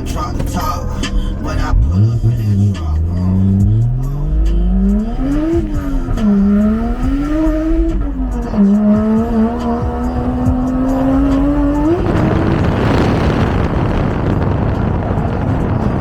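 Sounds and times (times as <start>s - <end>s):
car engine revving hard: 1.6s - 16.0s
loud rushing noise: 8.8s - 16.0s.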